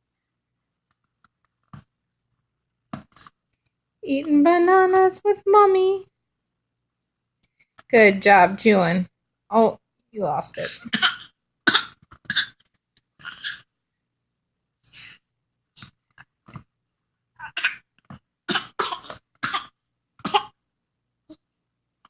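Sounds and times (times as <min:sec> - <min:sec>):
woman speaking: 0:04.0 - 0:06.1, 0:07.9 - 0:10.9
baby coughing: 0:10.6 - 0:12.6, 0:13.2 - 0:13.7, 0:17.4 - 0:17.9, 0:18.5 - 0:20.6.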